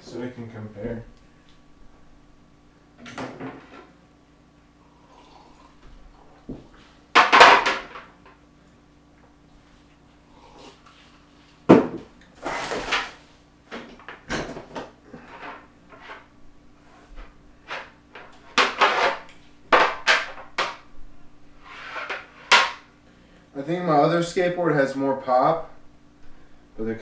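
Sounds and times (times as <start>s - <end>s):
skateboard decks clattering and scraping: 17.7s - 20.8s, 21.7s - 22.8s.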